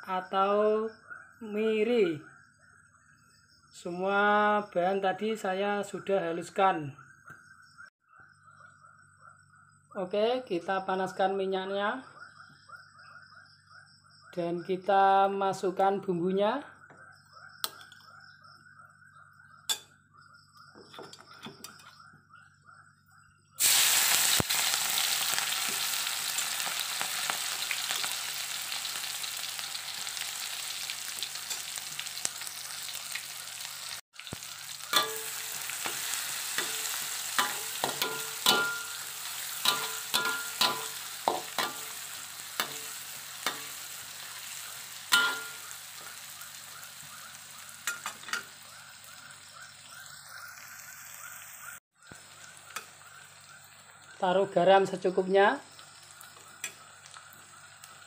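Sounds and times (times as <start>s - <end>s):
paste sizzling in hot oil: 23.6s - 54.2s, 55.7s - 58.0s
spatula scraping wok: 33.6s - 46.4s.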